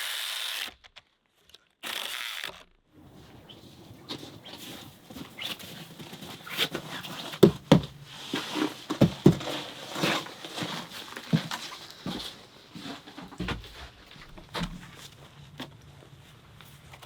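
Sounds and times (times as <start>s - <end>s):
rustling: 3.0s - 17.0s
knocks and thumps: 3.1s - 12.4s.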